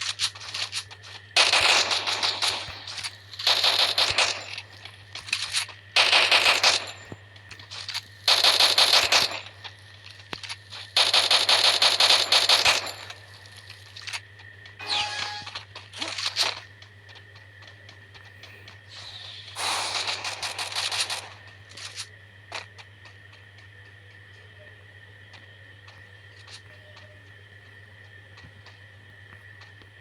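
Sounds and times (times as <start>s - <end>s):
steady low hum: 0.0s - 30.0s
automatic gunfire: 1.4s - 7.2s, 8.3s - 9.6s, 11.0s - 13.2s, 19.6s - 22.6s.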